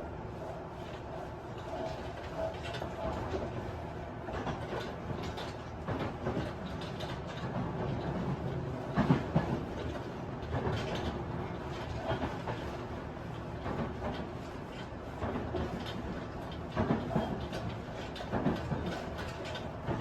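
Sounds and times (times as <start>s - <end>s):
train wheel and rail rumble: 0.0s - 20.0s
clatter and rattles: 4.3s - 12.8s, 13.6s - 20.0s.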